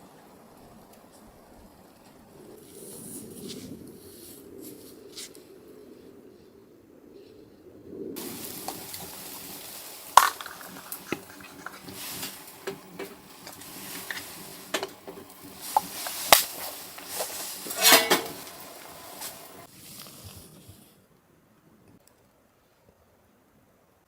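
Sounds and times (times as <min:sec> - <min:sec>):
food sizzling in a pan: 0:08.2 - 0:19.7
utensil stirring and scraping: 0:08.2 - 0:20.1.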